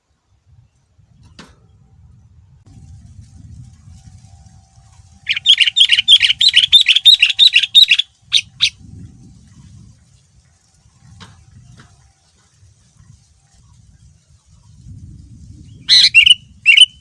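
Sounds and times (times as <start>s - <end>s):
bulbul singing chirping notes: 5.3s - 8.7s, 15.9s - 17.0s.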